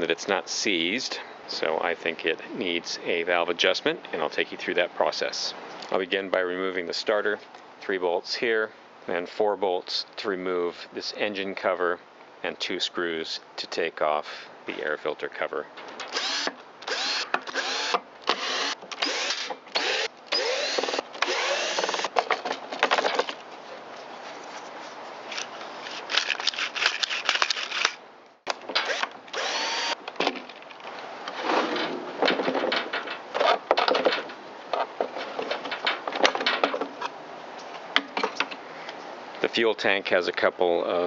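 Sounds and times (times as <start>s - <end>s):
cordless drill motor whine: 16.1s - 22.1s, 28.9s - 30.0s
drill clicks: 16.1s - 22.2s, 28.8s - 30.0s.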